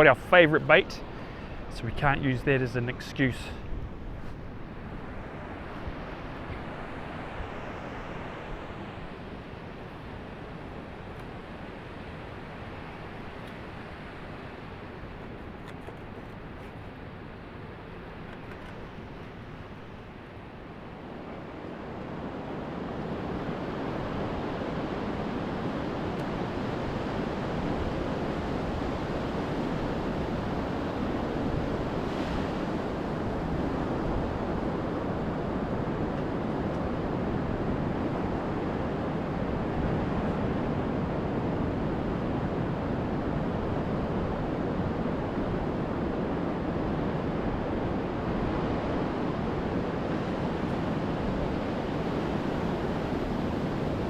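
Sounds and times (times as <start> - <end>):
surf waves breaking: 0.0 - 54.0
wind buffeting microphone: 0.0 - 54.0.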